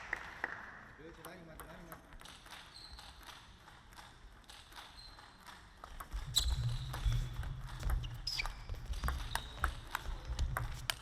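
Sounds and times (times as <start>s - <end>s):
ping pong ball clicking: 1.2s - 3.4s, 8.8s - 11.0s
shoes squeaking on floor: 2.6s - 3.4s, 4.7s - 11.0s.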